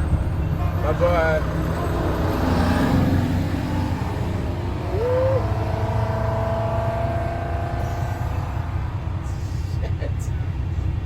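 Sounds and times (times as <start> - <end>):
loud unmuffled diesel exhaust: 0.0 - 11.0.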